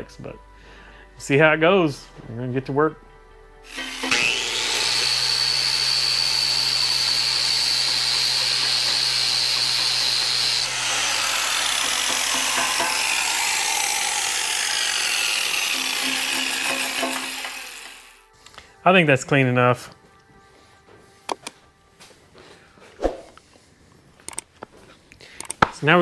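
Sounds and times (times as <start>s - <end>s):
power tool polishing steel: 3.7s - 18.3s
rough grinding sound: 3.7s - 18.3s.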